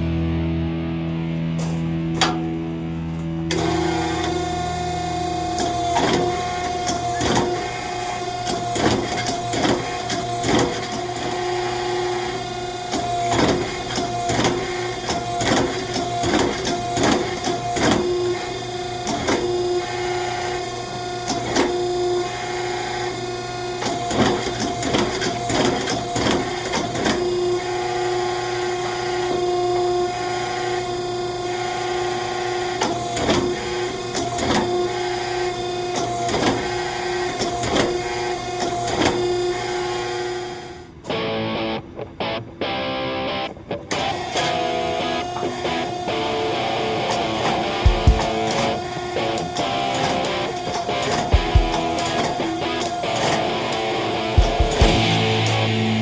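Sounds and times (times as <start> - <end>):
shop machinery humming: 0.0 - 56.0
metallic knocks and clanks: 1.6 - 2.6.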